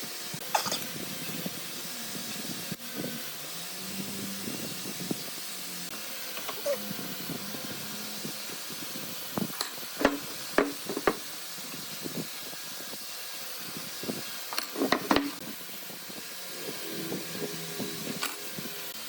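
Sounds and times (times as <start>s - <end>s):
steady hissing workshop noise: 0.0s - 19.0s
sharp knocks and clacks: 10.0s - 11.2s.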